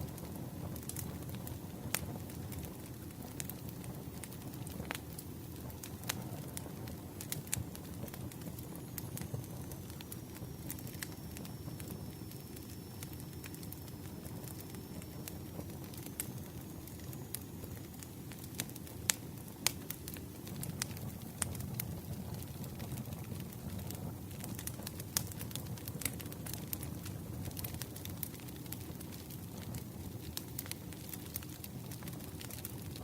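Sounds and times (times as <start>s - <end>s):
campfire flames rumbling: 0.0s - 33.0s
fire crackling and popping: 0.0s - 33.0s.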